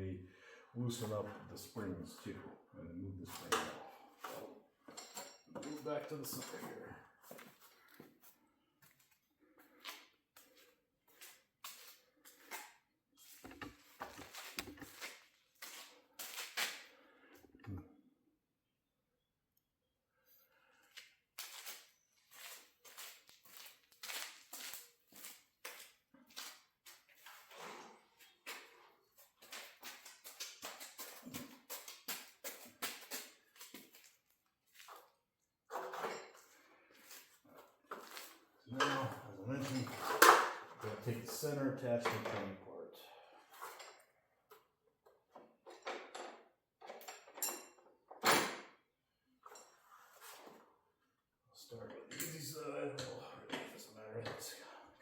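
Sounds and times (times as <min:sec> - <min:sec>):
hands handling tools and parts: 0:13.2 - 0:17.7
light clicks and knocks of tools: 0:13.4 - 0:15.1.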